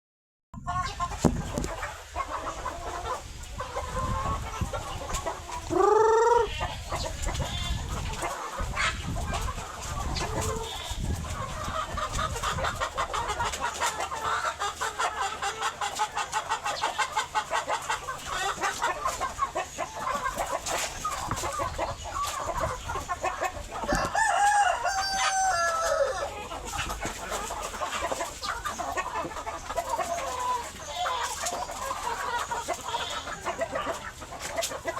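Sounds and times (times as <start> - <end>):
chickens clucking: 0.6 - 34.9
rooster crowing: 23.9 - 26.2.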